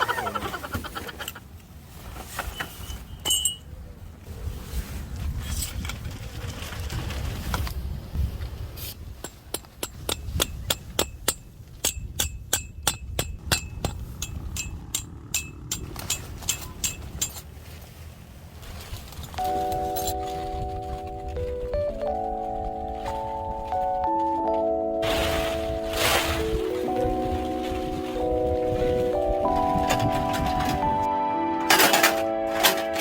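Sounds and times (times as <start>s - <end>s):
wind rumbling on microphone: 3.9s - 17.4s, 25.2s - 31.1s.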